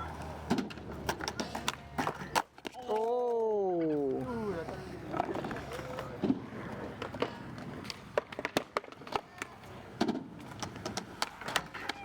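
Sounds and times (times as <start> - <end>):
skateboards clacking on pavement: 0.0 - 12.0.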